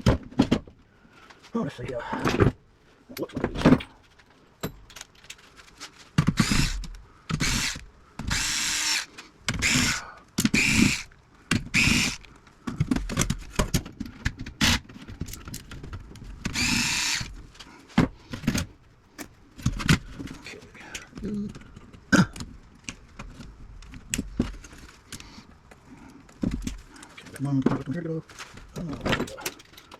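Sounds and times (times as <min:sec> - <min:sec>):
clicks and handling noise: 0:03.1 - 0:07.0, 0:12.2 - 0:16.7, 0:17.6 - 0:29.9
cordless drill bursts: 0:06.3 - 0:11.1, 0:11.7 - 0:12.2, 0:16.5 - 0:17.4.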